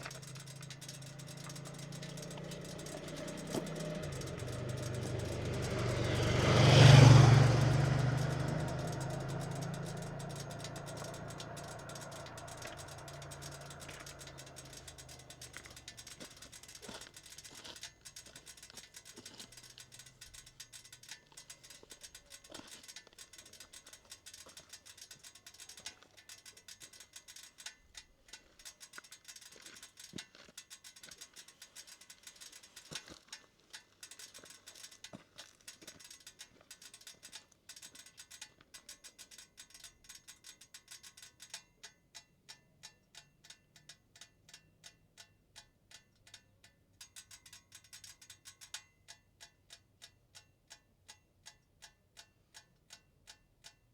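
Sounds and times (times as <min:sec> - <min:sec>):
motorcycle engine revving: 0:00.0 - 0:20.6
faint irregular ticks: 0:00.0 - 0:53.9.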